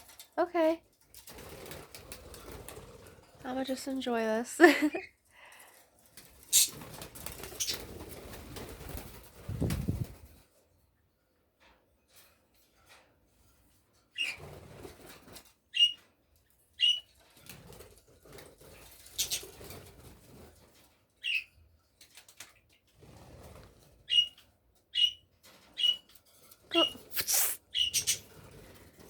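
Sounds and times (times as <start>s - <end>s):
parrots flapping wings: 1.0s - 3.7s, 4.8s - 10.4s, 14.2s - 15.5s, 17.4s - 20.9s, 22.0s - 23.9s, 26.7s - 29.0s
parrot chirps: 6.5s - 6.8s, 25.8s - 26.0s, 26.7s - 28.3s.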